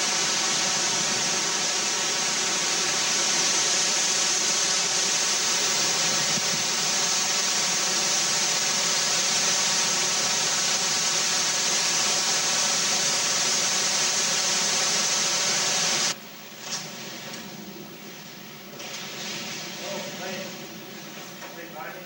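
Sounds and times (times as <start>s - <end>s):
driving rain: 0.0s - 17.9s, 18.7s - 22.0s
hurricane-force wind: 4.0s - 7.7s.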